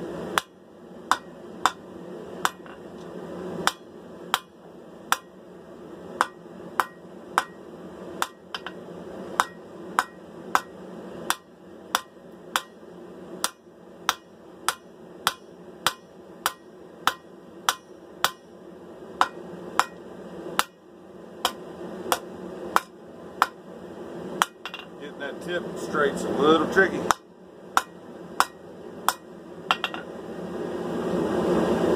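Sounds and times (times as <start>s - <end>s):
hammer striking blade on anvil: 0.4s - 1.8s, 2.4s - 2.8s, 3.6s - 4.5s, 6.2s - 7.6s, 8.2s - 8.8s, 9.4s - 12.8s, 13.4s - 18.5s, 19.2s - 20.0s, 24.4s - 24.9s, 27.1s - 30.1s.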